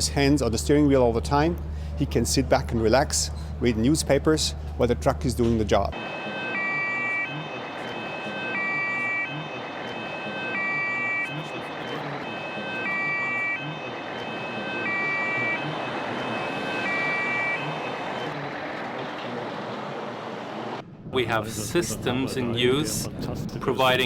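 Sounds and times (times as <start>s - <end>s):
road noise: 0.0s - 24.0s
two-tone emergency siren: 5.9s - 20.8s.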